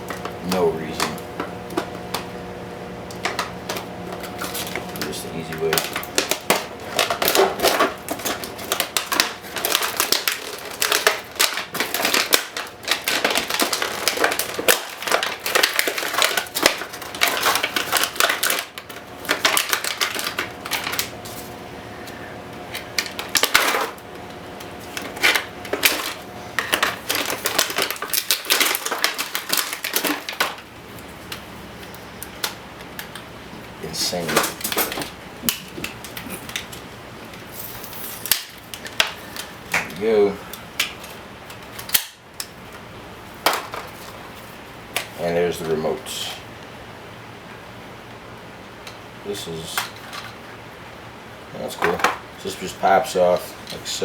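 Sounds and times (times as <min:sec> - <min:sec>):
packaging crinkling: 0:03.2 - 0:46.0.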